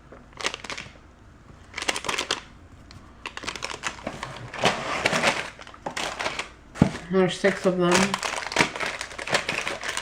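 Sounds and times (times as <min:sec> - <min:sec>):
plastic packaging crinkling: 0:00.1 - 0:01.0, 0:01.6 - 0:10.0.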